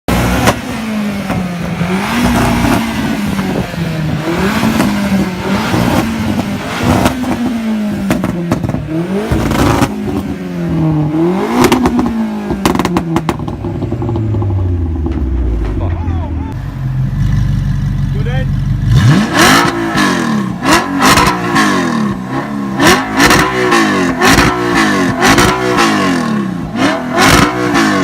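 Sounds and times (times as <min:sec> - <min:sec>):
car engine revving: 0:00.1 - 0:28.0
exhaust pops and crackles: 0:00.2 - 0:10.3, 0:11.5 - 0:16.6.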